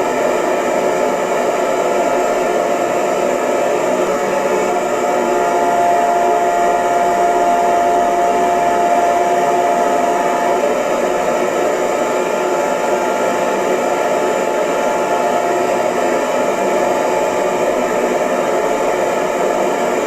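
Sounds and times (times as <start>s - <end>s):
hair dryer running: 0.0s - 20.0s
high tone: 5.2s - 10.7s.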